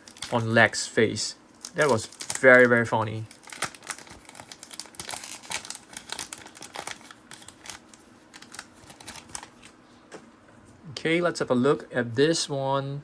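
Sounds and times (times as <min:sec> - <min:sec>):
paper wrapping crinkling: 0:00.0 - 0:00.7, 0:01.6 - 0:09.8.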